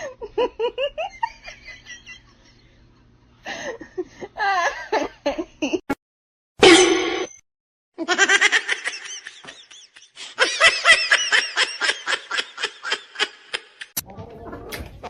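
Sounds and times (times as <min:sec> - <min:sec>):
high-pitched human laughter: 0:08.0 - 0:14.0.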